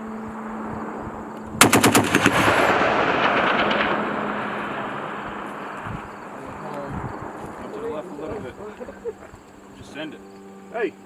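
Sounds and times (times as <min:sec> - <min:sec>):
long rolling echo: 0:00.0 - 0:10.3
heavy machine gun burst: 0:01.6 - 0:06.4.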